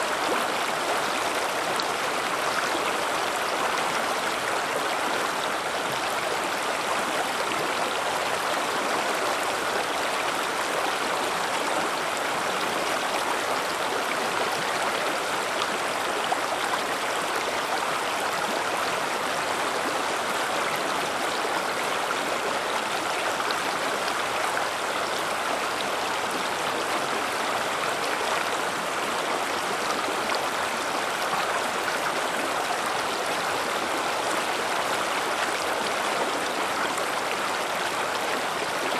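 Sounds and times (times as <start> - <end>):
river water rushing over rocks: 0.0 - 38.9.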